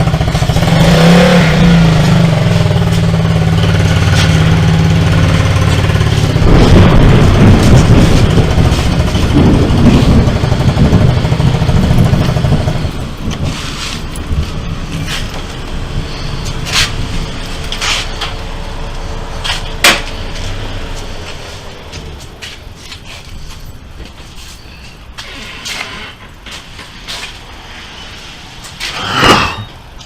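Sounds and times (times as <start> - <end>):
low motor hum: 0.0 - 23.8
thunder rumble: 4.4 - 16.1.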